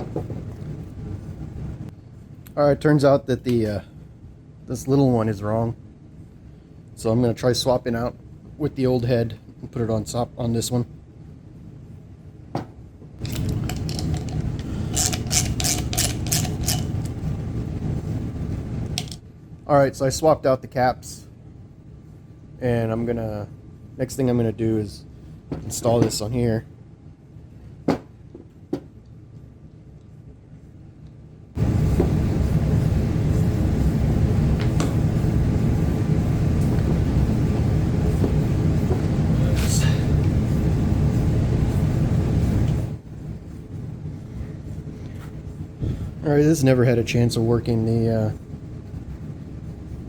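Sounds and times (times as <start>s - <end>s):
low steady rumble: 0.0s - 50.0s
hard parts clicking and rattling: 13.2s - 17.2s
air compressor droning: 13.2s - 19.2s, 31.6s - 50.0s.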